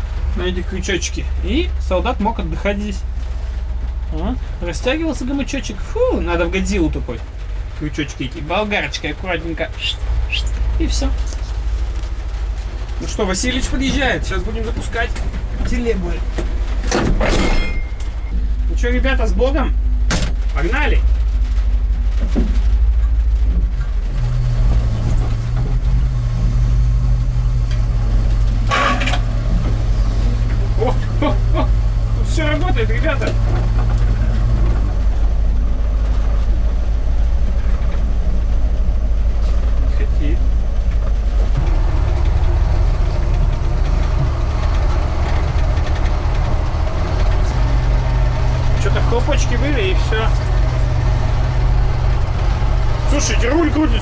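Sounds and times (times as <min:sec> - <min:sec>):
truck engine rumbling: 0:00.0 - 0:54.0.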